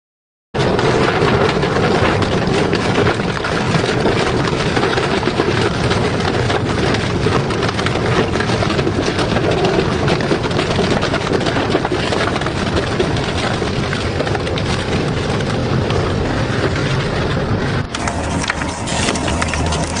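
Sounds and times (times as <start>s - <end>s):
shredder grinding metal: 17.9s - 20.0s.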